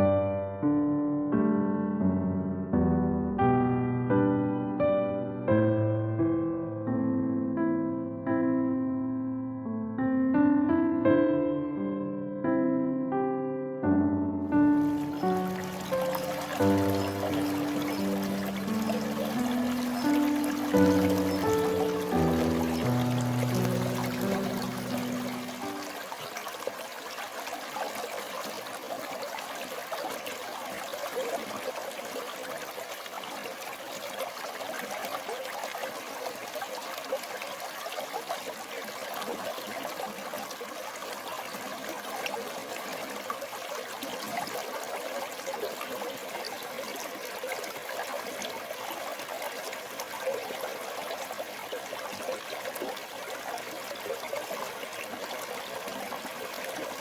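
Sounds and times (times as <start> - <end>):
stream water flowing: 14.5 - 57.0.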